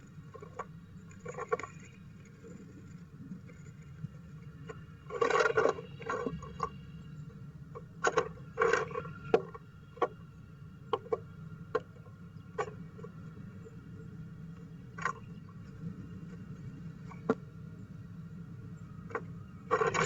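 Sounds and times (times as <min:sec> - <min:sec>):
woodpecker scratching on wood: 0:19.7 - 0:20.0.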